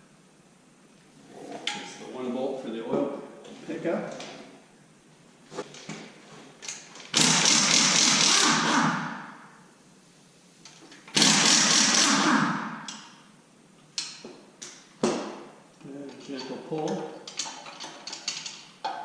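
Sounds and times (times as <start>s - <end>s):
hand-held power tool running: 7.1s - 9.1s, 11.1s - 12.7s.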